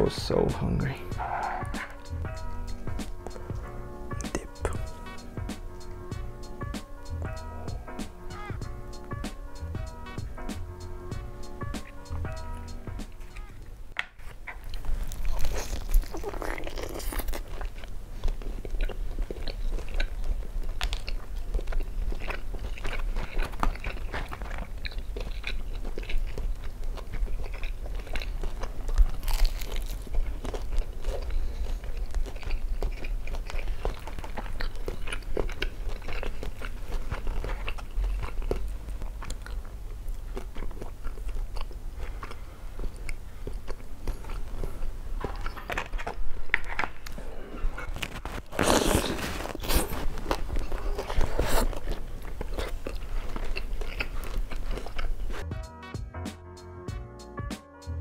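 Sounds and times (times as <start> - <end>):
crunching fried chicken: 14.2 - 55.5.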